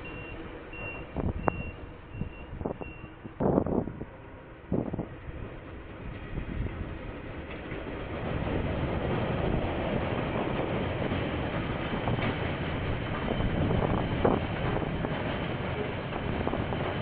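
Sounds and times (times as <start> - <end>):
diesel locomotive engine: 0.0 - 17.0
wheels clattering on rails: 5.0 - 17.0.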